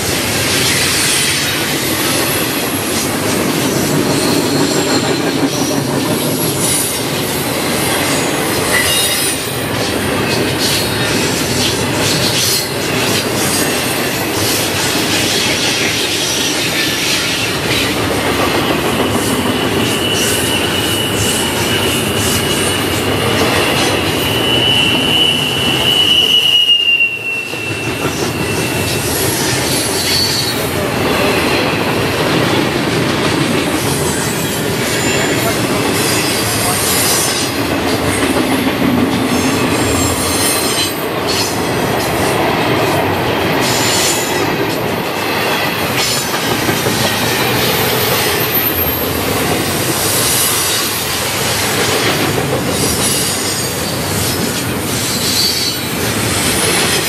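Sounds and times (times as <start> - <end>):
freight train wheels on rails: 0.0 - 57.0
high wheel squeal: 0.4 - 18.0, 18.6 - 31.9, 47.1 - 52.1, 52.7 - 57.0.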